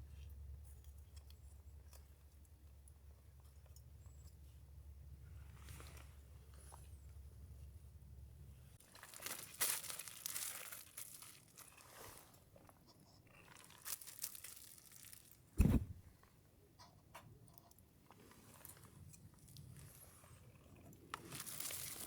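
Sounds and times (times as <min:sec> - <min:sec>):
crinkling handling noises: 0:08.8 - 0:12.8, 0:13.4 - 0:16.0, 0:20.9 - 0:22.0
dull thump: 0:15.6 - 0:16.0.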